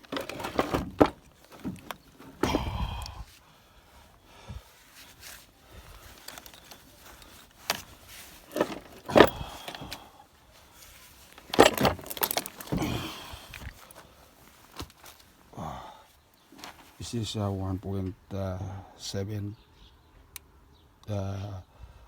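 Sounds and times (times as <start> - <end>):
metal hand tools clinking: 6.0 - 10.0, 11.4 - 12.9.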